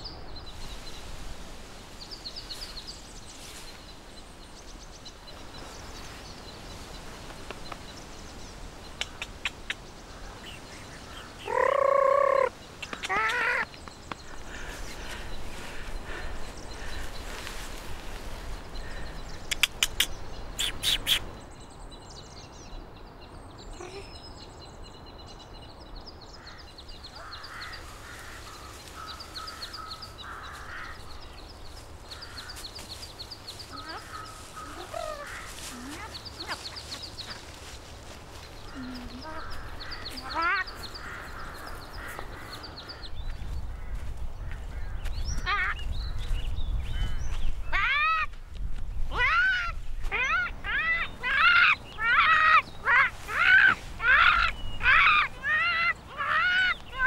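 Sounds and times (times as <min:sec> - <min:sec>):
birds chirping: 0:00.0 - 0:57.0
sharp clicks: 0:19.5 - 0:20.1.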